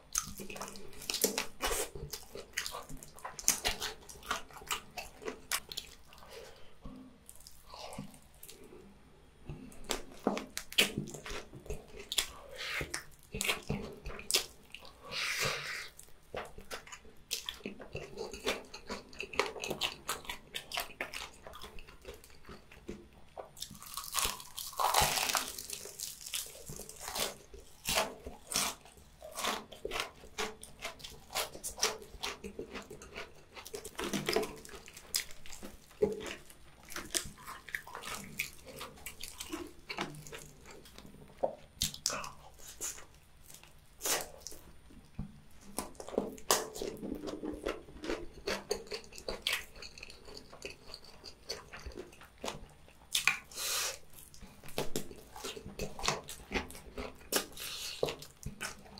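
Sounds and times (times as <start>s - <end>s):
wet chewing and mouth smacks: 0.1s - 58.9s
crunch of biting fried chicken: 23.5s - 41.0s.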